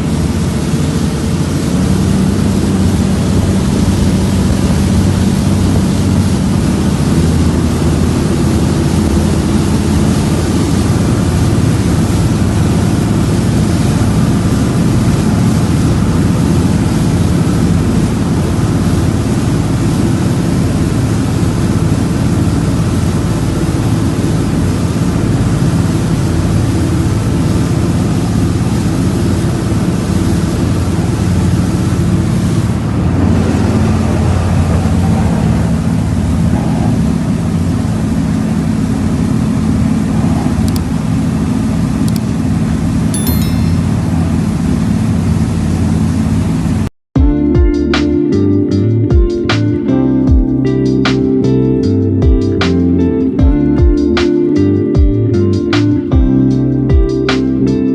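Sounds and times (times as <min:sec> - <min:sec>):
wind and water hiss: 0:00.0 - 0:35.0
boat diesel engine droning: 0:00.0 - 0:57.9.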